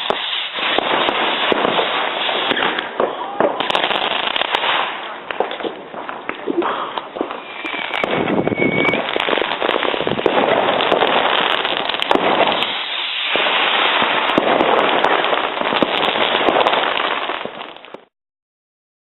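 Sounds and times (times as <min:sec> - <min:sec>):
firework whistle: 0:00.0 - 0:04.9, 0:07.2 - 0:15.1
firecrackers crackling: 0:00.0 - 0:18.1
firework bangs: 0:00.0 - 0:18.1.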